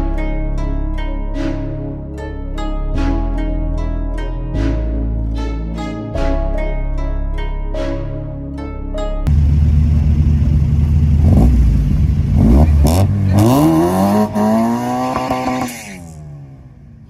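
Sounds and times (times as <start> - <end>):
car engine revving: 9.3 - 17.0.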